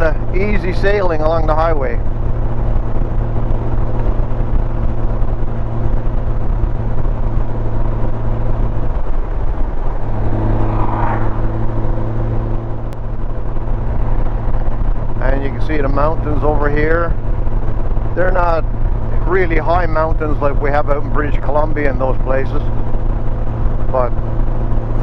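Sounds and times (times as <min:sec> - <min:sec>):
motorcycle engine hum: 0:00.0 - 0:25.0
wind and road noise: 0:00.0 - 0:25.0.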